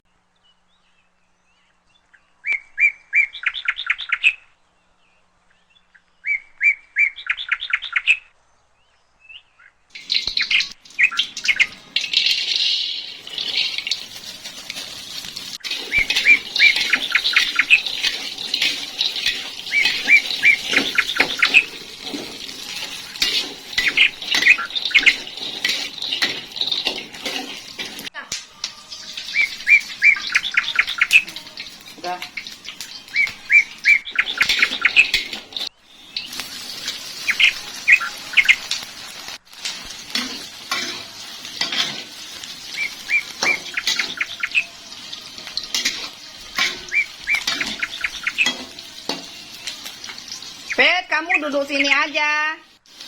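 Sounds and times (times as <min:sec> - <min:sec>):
small bird chirping: 0:00.6 - 0:14.5, 0:15.3 - 0:26.8, 0:28.7 - 0:38.8, 0:42.6 - 0:52.0
steady hiss: 0:52.7 - 0:53.0.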